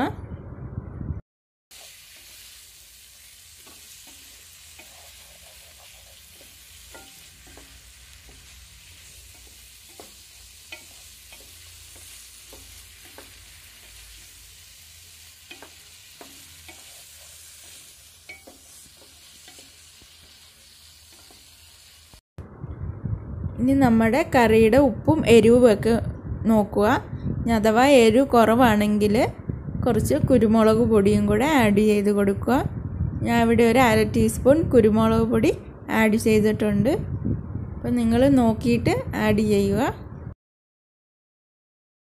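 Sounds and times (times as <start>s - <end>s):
chicken sizzling in a pan: 1.7s - 22.2s
utensil scraping a pan: 3.2s - 14.4s, 15.0s - 22.0s.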